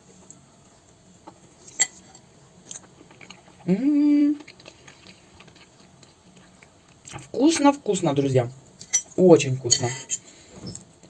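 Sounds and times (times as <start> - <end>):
soft chewing: 0.1 - 7.4
woman humming mmm: 3.6 - 4.5.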